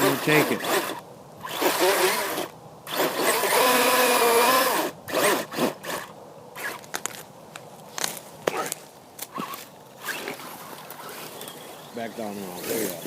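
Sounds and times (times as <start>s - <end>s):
toy truck electric motor whining: 0.0s - 6.9s.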